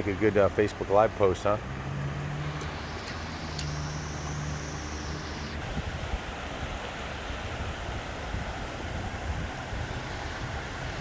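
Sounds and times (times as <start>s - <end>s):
vehicle engine humming: 0.0s - 7.0s
high whine: 2.4s - 5.8s.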